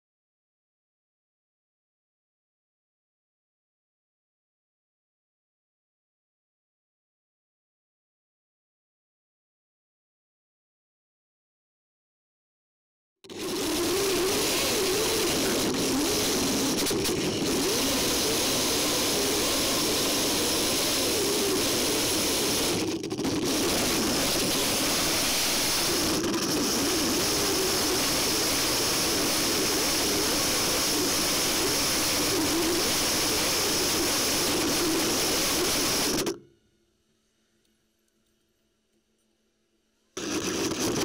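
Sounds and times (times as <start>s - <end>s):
toy tank motors whining: 13.3s - 36.4s, 40.2s - 41.0s.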